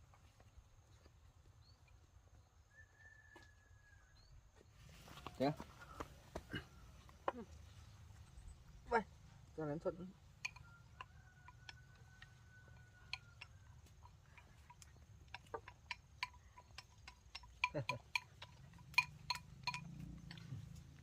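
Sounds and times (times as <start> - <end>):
utensils clinking against bowls: 10.3 - 21.0.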